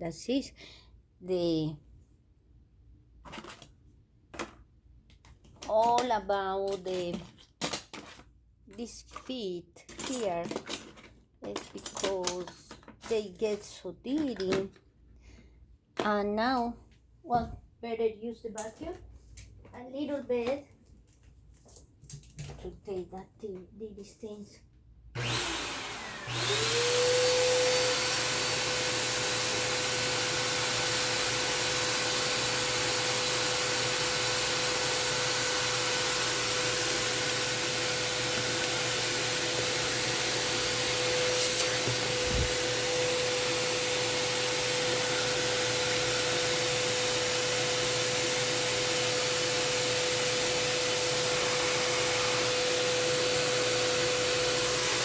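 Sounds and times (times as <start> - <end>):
vacuum cleaner running: 25.2 - 55.0.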